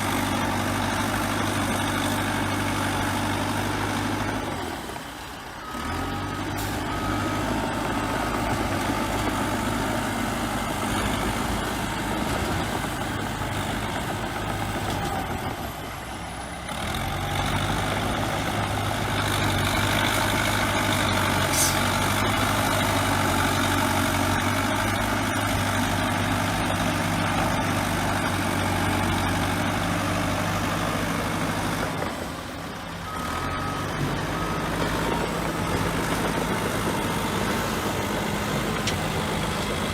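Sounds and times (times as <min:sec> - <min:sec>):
bulldozer diesel engine running: 0:00.0 - 0:39.9
reversing alarm beeping: 0:33.0 - 0:38.6.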